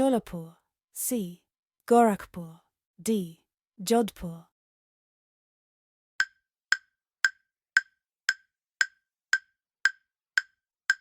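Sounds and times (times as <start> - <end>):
timer ticking: 6.2 - 11.0.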